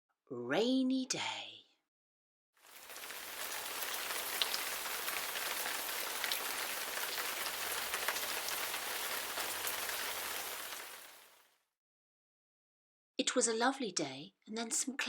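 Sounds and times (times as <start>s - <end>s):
steady rain falling: 2.6s - 11.5s
raindrops ticking: 2.7s - 11.3s.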